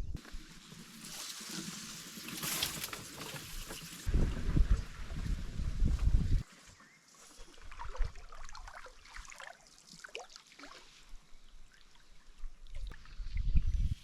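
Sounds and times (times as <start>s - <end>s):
water trickling and lapping: 6.7s - 14.0s
small splashes and drips: 7.4s - 13.4s.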